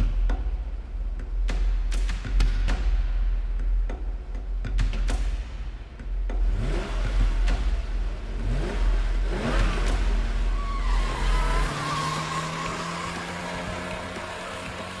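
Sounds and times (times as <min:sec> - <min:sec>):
sports car engines revving: 0:04.2 - 0:15.0
deep engine rumble: 0:06.3 - 0:15.0
high wavering squeal: 0:10.5 - 0:15.0.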